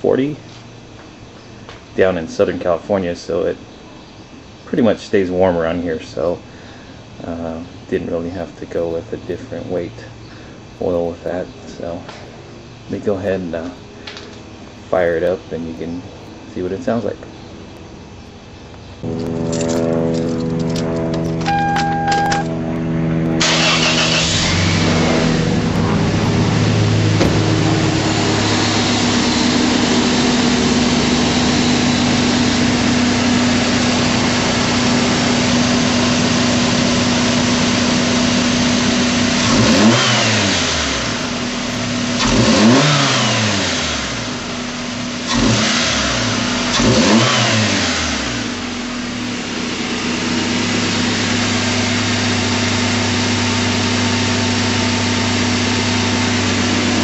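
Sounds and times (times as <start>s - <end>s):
car engine idling and revving: 19.0s - 57.0s.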